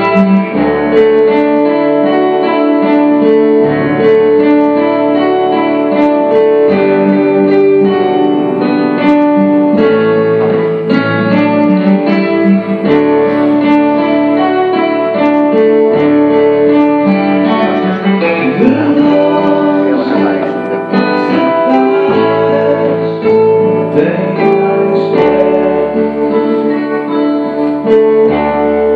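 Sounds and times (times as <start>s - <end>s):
guitar playing chords: 0.0s - 28.9s
keyboard playing chords: 0.0s - 28.9s.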